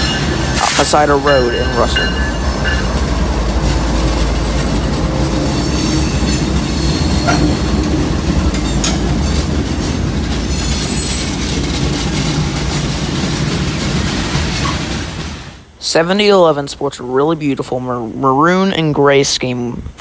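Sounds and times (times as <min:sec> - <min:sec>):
high wheel squeal: 0:00.0 - 0:11.8
freight train wheels rumbling: 0:00.0 - 0:17.7.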